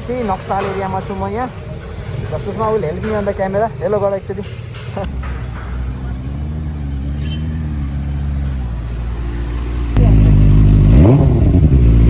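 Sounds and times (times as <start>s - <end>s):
engine throttle blip: 0.0s - 12.0s
motorcycle engine idling: 0.0s - 12.0s.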